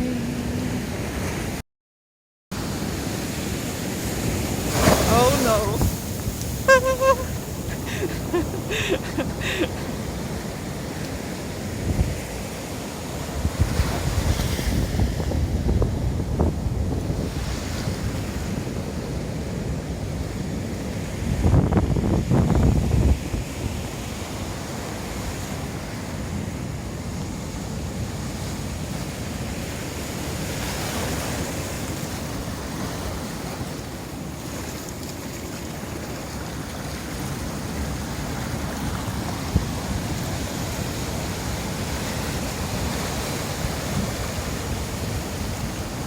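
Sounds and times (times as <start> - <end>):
waves breaking on a beach: 2.6 - 46.0
wind buffeting microphone: 13.4 - 24.0.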